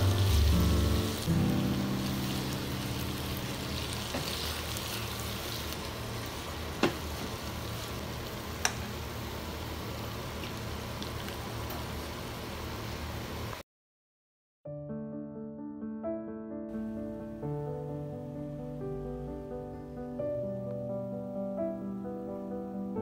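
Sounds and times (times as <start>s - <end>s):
food sizzling in a pan: 0.0s - 13.6s.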